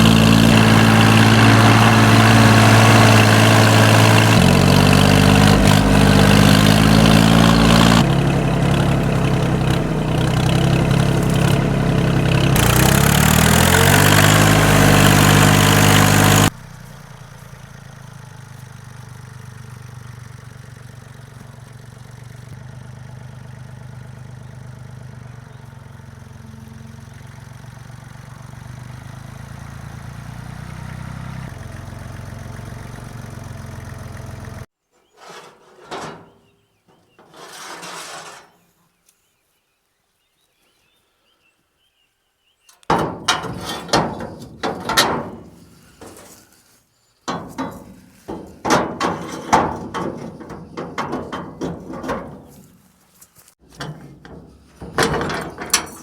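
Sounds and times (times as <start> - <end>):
tractor engine running: 0.0 - 38.4, 42.8 - 46.7, 47.3 - 56.0
sharp knocks and clatter: 42.8 - 46.5, 47.3 - 53.0, 53.6 - 56.0.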